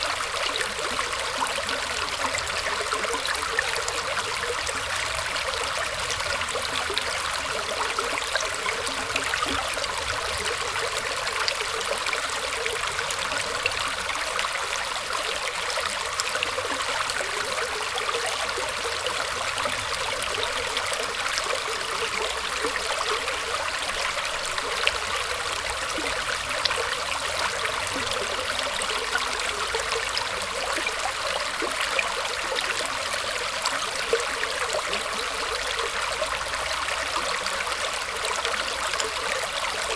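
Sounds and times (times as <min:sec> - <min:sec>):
water flowing and trickling: 0:00.0 - 0:39.9.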